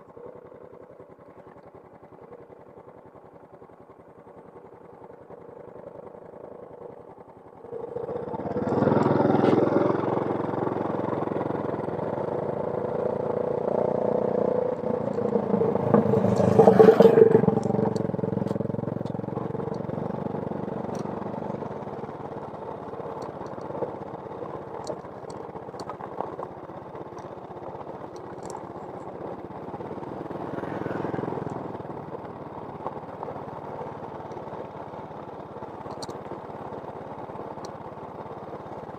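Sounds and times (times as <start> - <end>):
motor vehicle passing by: 7.8 - 22.2, 29.6 - 34.0.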